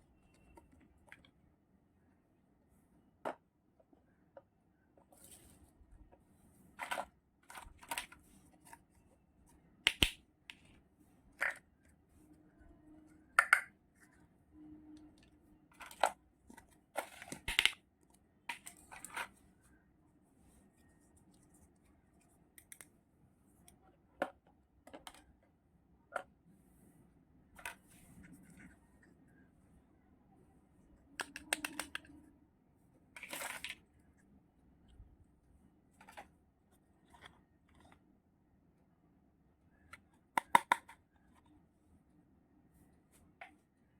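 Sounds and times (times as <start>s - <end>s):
toy kitchen pieces clicking: 9.9s - 10.2s, 13.4s - 13.7s, 17.0s - 17.8s, 31.2s - 32.1s, 40.3s - 41.0s.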